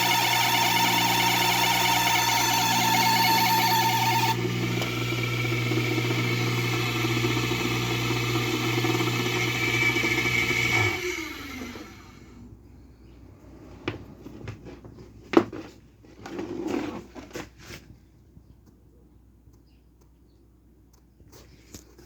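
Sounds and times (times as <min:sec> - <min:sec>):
pump motor humming: 0:00.0 - 0:12.2
motor winding down: 0:00.0 - 0:12.3.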